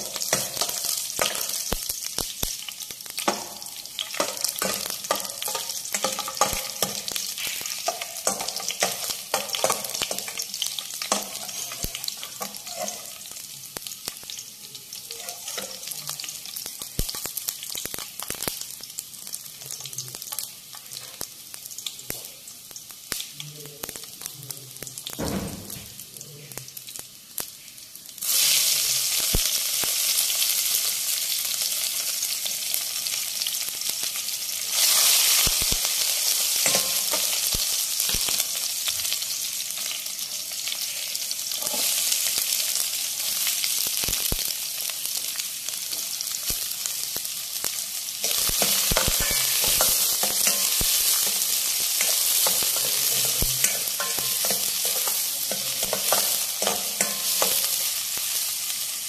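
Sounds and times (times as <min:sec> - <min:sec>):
vegetables sizzling in hot oil: 0:00.0 - 0:59.0
metal spatula scraping pan: 0:48.2 - 0:51.4.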